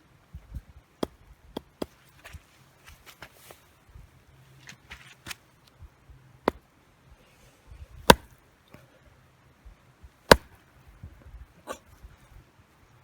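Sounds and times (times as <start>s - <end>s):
axe chopping firewood: 8.0s - 8.4s, 10.3s - 10.6s.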